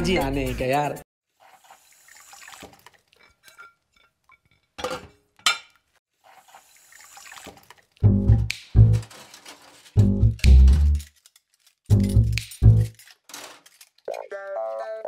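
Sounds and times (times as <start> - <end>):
running and splashing water: 1.2 - 3.5, 6.1 - 8.0
plate and utensils clinking: 3.2 - 5.8
plucked bass music: 8.0 - 9.0, 10.0 - 11.0, 11.9 - 12.9.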